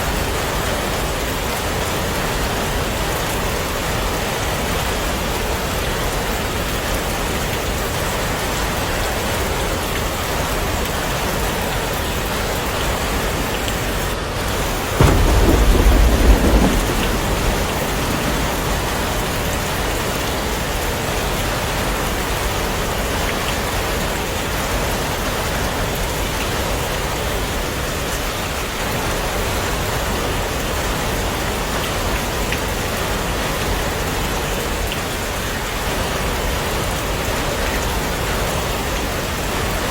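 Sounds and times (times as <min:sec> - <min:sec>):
heavy rain falling: 0:00.0 - 0:39.9
thunder clap rumbling: 0:14.4 - 0:21.2.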